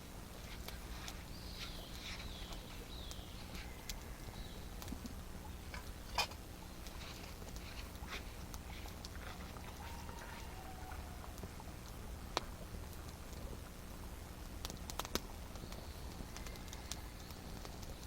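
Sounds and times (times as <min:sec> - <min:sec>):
small clicks: 0:14.6 - 0:18.0.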